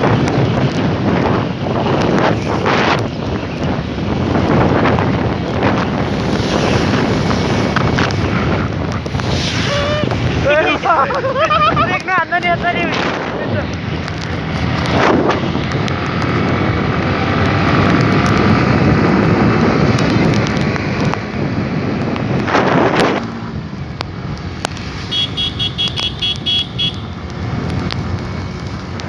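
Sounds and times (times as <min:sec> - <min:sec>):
traffic and wind rush: 0:00.0 - 0:29.0.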